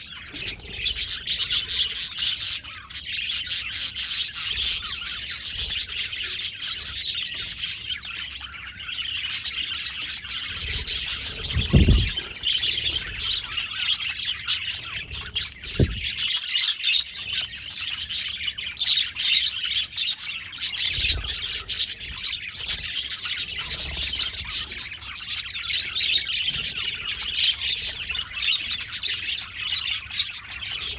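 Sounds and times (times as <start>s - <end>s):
budgerigars chirping: 0.1s - 18.0s
low thuds: 11.4s - 12.5s, 15.7s - 16.2s.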